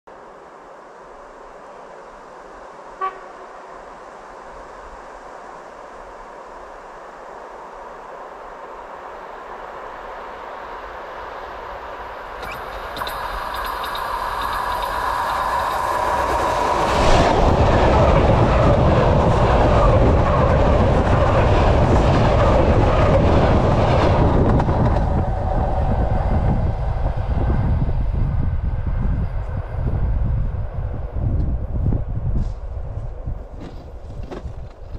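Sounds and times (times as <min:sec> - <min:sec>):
train wheels rumbling on rail: 0:10.7 - 0:34.9.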